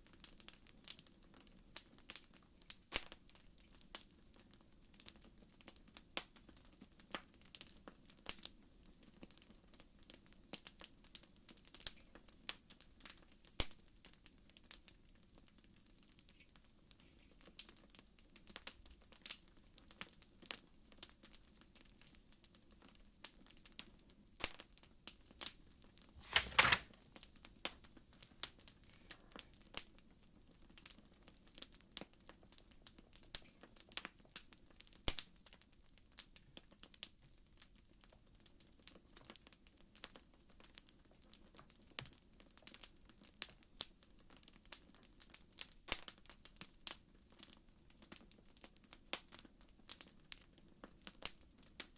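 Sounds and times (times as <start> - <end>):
wood fire crackling and popping: 38.8 - 51.9.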